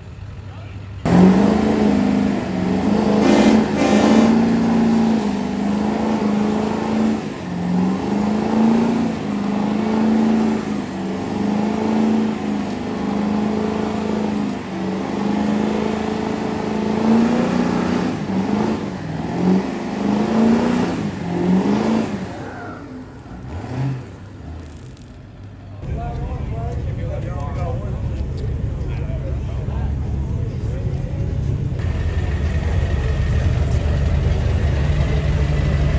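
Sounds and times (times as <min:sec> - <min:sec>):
vehicle engine revving: 0:01.0 - 0:25.4, 0:31.8 - 0:35.9.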